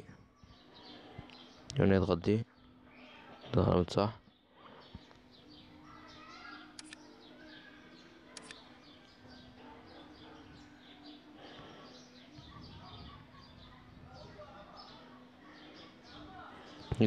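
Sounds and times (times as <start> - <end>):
birds chirping: 0.0 - 17.0
sharp clicks: 6.7 - 7.0, 8.3 - 8.6.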